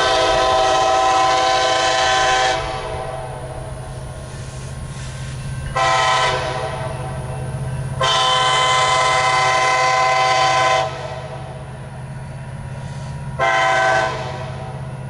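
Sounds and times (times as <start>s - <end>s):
locomotive air horn blasts: 0.0s - 3.4s, 5.7s - 7.0s, 8.0s - 11.4s, 13.0s - 14.7s
diesel engines rumbling: 0.0s - 15.0s.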